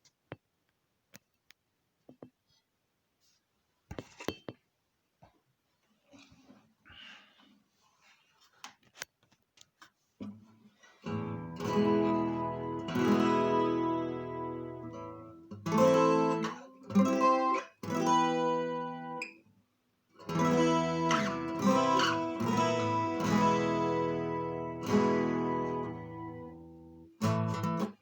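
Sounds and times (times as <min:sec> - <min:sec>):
acoustic guitar strummed chords: 0:11.0 - 0:19.4, 0:20.2 - 0:28.0.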